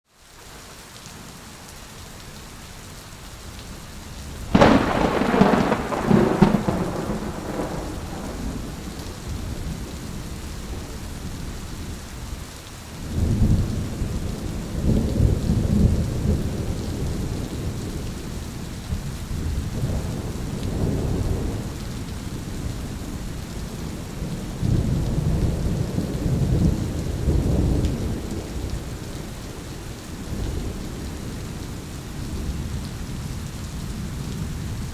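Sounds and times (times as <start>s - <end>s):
steady rain: 0.0s - 34.9s
low rolling thunder rumbles: 4.4s - 12.3s, 13.0s - 34.9s
sharp thunderclap: 4.5s - 9.9s.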